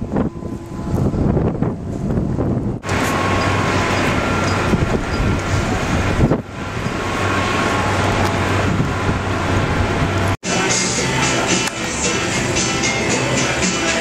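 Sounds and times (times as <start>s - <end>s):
strong wind on microphone: 0.0s - 10.4s
vehicle engine low hum: 0.0s - 13.6s.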